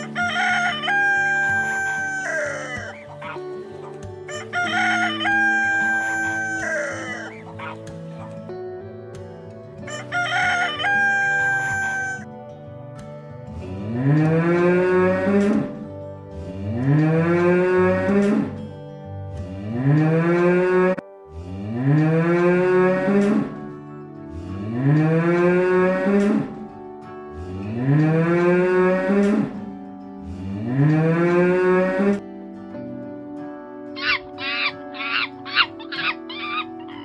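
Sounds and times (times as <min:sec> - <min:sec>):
cow mooing: 0:13.7 - 0:15.8, 0:16.6 - 0:18.6, 0:19.5 - 0:23.7, 0:24.3 - 0:26.7, 0:27.4 - 0:32.2.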